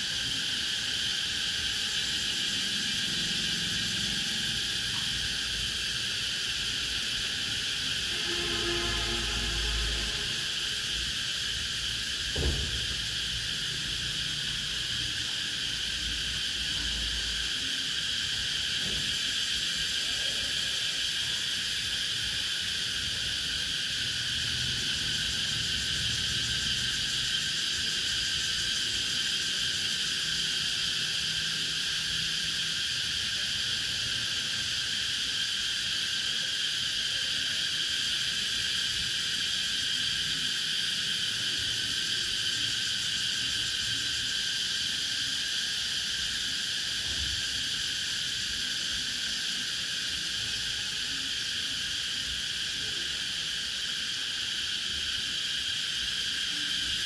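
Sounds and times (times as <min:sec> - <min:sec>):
cicadas singing: 0:00.0 - 0:57.0
brief thump: 0:12.3 - 0:13.0.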